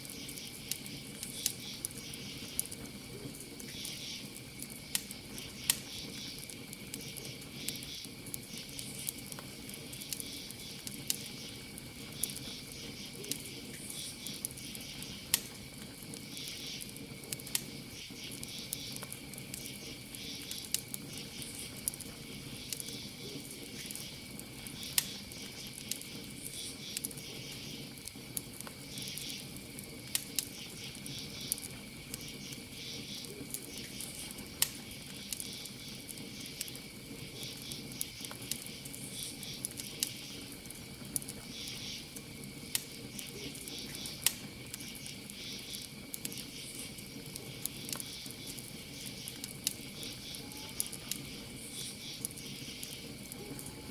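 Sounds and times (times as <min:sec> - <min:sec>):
campfire crackling: 0:00.0 - 0:53.9
crickets trilling: 0:00.0 - 0:53.9.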